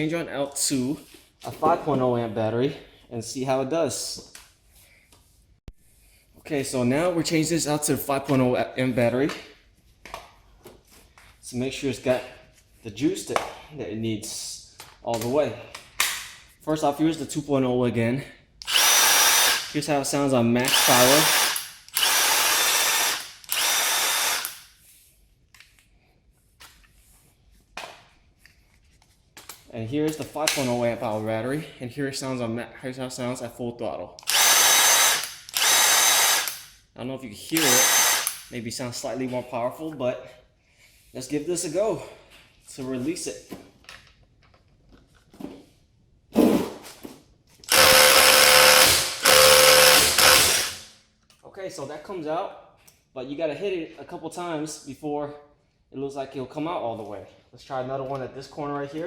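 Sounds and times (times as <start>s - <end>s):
impact driver whirring: 18.6s - 19.8s, 20.6s - 24.7s, 34.2s - 36.7s, 37.6s - 38.5s, 47.7s - 50.9s
impact driver hammering: 47.7s - 50.8s.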